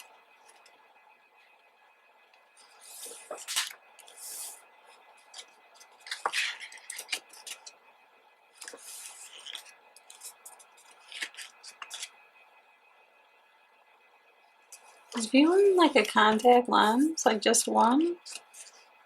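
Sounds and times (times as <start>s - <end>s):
paper sliding: 2.6s - 4.6s, 8.6s - 12.1s
pages rustling and turning: 2.6s - 7.8s, 8.5s - 12.2s, 17.8s - 18.9s.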